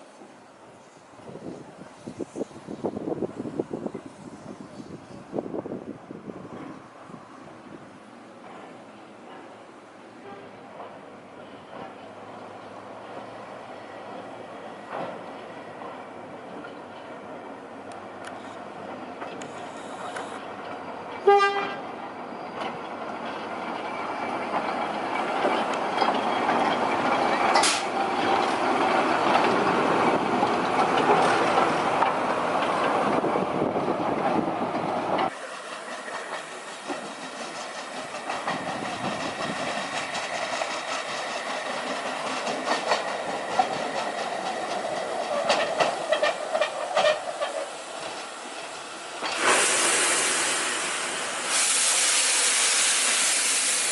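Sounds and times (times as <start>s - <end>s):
train running on track: 0.0s - 53.9s
rail clicks: 6.5s - 53.9s
train whistle toot: 21.2s - 21.8s.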